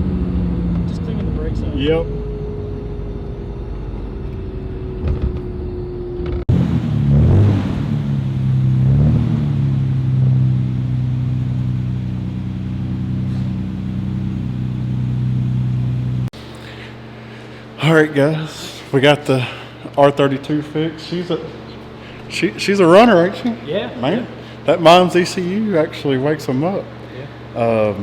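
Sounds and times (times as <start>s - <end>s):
car engine revving: 0.0s - 16.3s.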